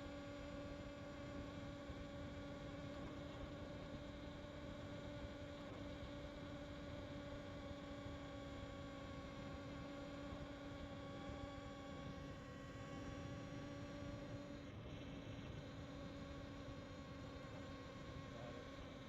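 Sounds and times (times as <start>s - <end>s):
steady hum: 9.4s - 19.0s.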